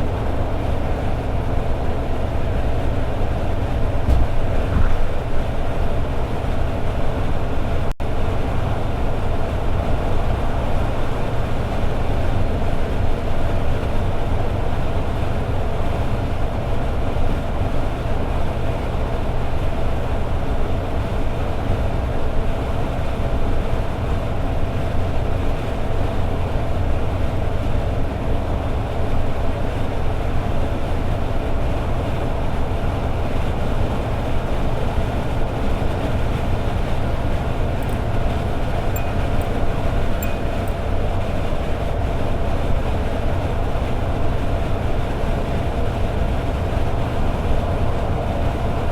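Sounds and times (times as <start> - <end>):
road noise: 0.0 - 48.9
car engine cruising: 31.8 - 48.9.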